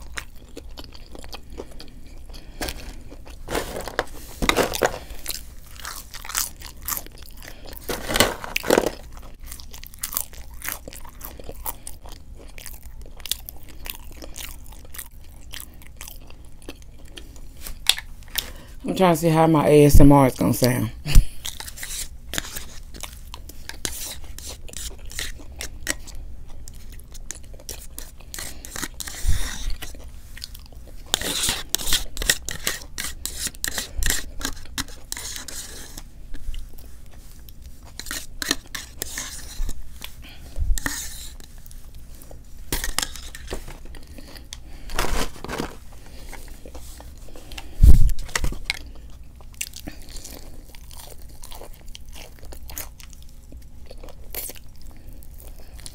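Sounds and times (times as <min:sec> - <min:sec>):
wet chewing: 0:00.0 - 0:03.5, 0:04.8 - 0:18.6, 0:48.3 - 0:55.9
crunchy bites of fried food: 0:04.6 - 0:18.5.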